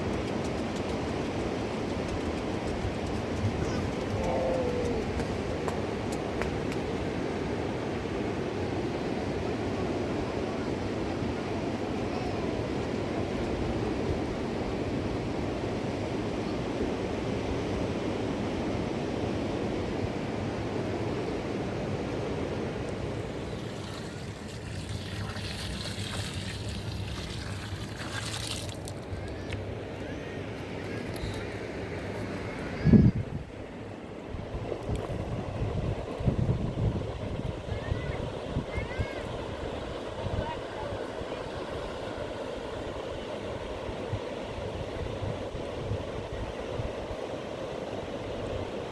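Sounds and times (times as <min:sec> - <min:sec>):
river rushing: 0:33.5 - 0:48.9.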